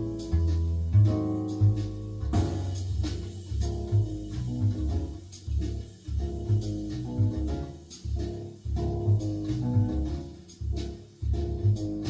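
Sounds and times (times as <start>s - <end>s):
walking bass: 0.0s - 12.0s
cymbal strikes: 1.1s - 9.6s.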